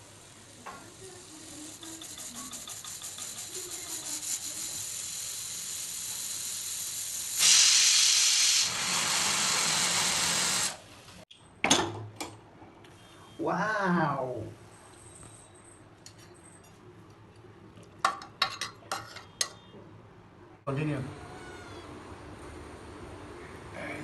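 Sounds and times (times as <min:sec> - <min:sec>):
food sizzling in hot oil: 0:00.0 - 0:10.8.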